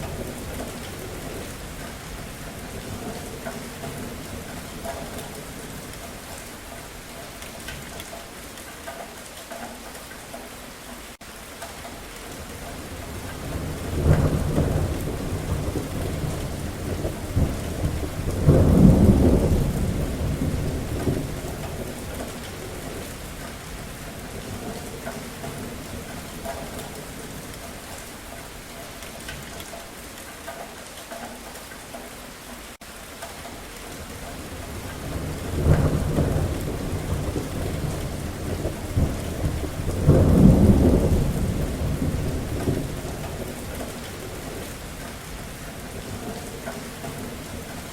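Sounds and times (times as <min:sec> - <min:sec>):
steady rain: 0:00.0 - 0:47.9
thunder rumbling: 0:12.4 - 0:27.9, 0:34.0 - 0:47.9.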